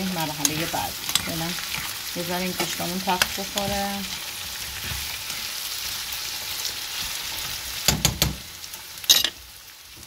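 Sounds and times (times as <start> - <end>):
meat sizzling in oil: 0.0 - 10.0
metal spoon scraping a pan: 0.1 - 5.5.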